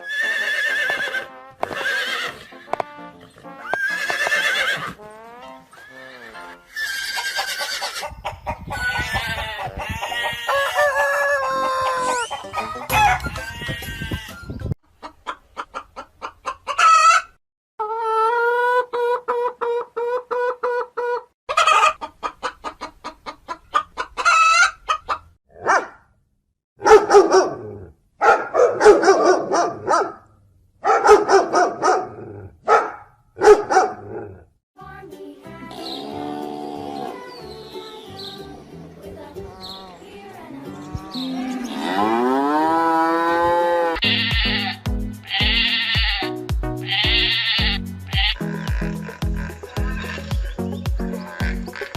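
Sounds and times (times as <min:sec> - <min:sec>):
chickens clucking: 0:06.2 - 0:25.3, 0:35.6 - 0:42.4, 0:48.3 - 0:51.9
rooster crowing: 0:08.8 - 0:14.4.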